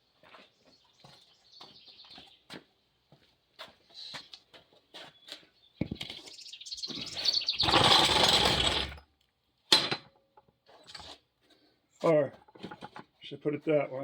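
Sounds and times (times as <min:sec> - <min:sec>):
jack scraping and rolling on ground: 0:07.0 - 0:09.1.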